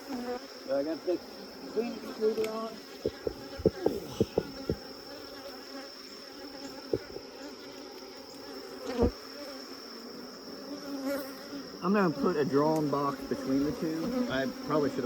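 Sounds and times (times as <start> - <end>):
bees buzzing: 0.0 - 15.0
sharp knocks: 3.0 - 4.8.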